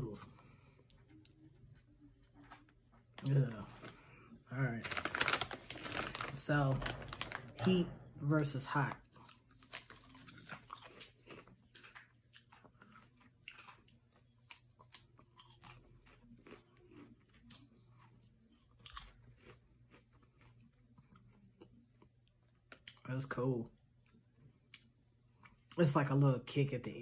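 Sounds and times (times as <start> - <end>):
crunching chips: 4.7 - 7.6, 9.2 - 21.2.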